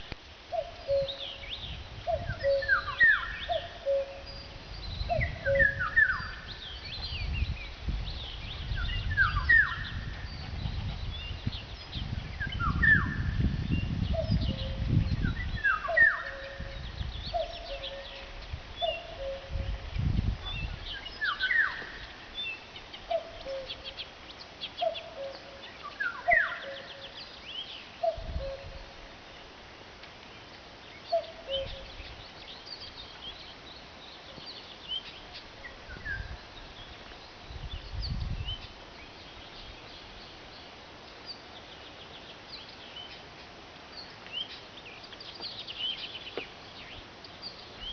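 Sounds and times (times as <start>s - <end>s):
low rumbling microphone noise: 0.0s - 24.1s, 34.5s - 40.3s
songbirds singing and chirping: 0.0s - 47.9s.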